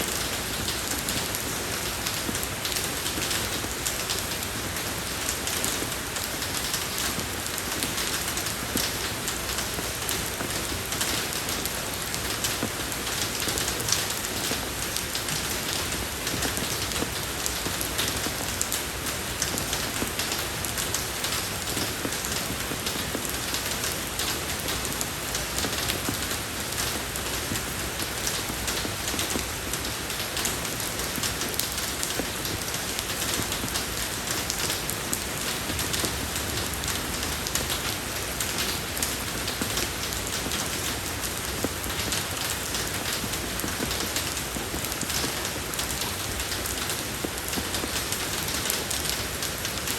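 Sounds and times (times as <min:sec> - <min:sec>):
rain on a road: 0:00.0 - 0:49.9.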